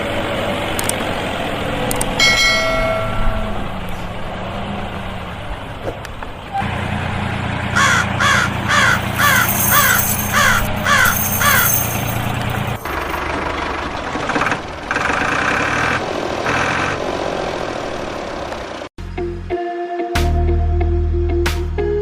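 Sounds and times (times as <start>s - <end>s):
low motor hum: 0.0s - 18.9s
cawing calls: 7.8s - 11.8s.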